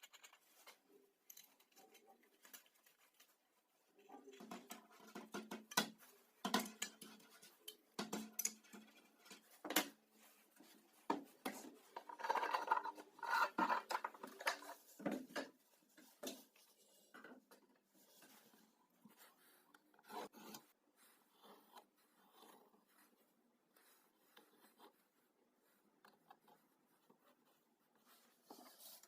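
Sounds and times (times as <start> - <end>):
rubbing or scraping: 0.0 - 17.1
tools tapping and knocking on wood: 4.2 - 10.0, 10.6 - 17.7.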